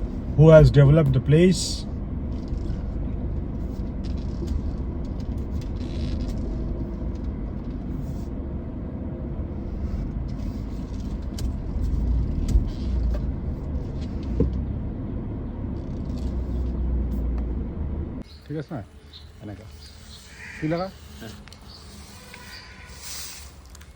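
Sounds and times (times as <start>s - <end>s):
steady low rumble: 0.0s - 18.3s.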